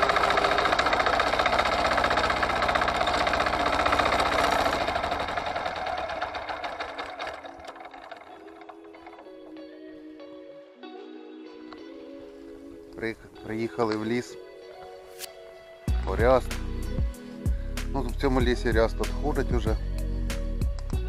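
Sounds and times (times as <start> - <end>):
tractor engine chugging: 0.0 - 9.3
music: 7.9 - 21.0.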